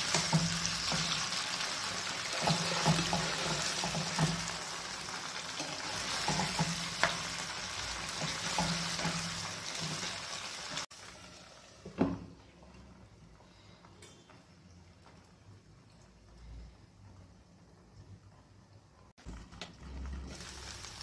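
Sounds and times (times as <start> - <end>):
spatula scraping a pan: 0.0 - 10.9
food sizzling in oil: 0.0 - 12.0, 19.2 - 21.0.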